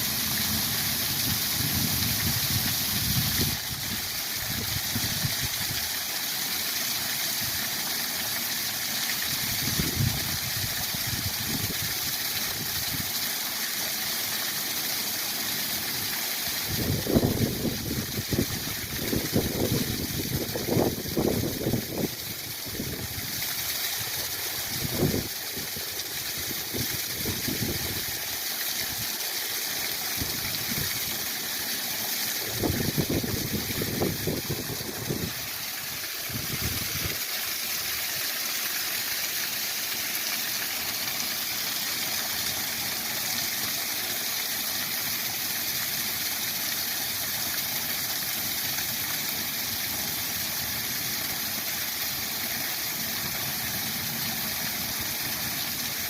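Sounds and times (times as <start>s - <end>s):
waterfall rushing: 0.0s - 6.2s, 16.6s - 56.0s
wind buffeting microphone: 16.8s - 22.1s, 32.4s - 35.4s, 36.3s - 37.2s.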